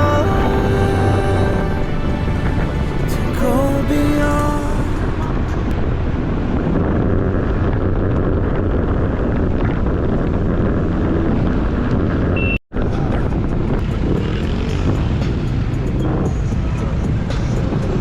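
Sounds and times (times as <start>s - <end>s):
background music: 0.0s - 5.8s, 13.8s - 18.0s
scooter road and wind noise: 0.0s - 18.0s.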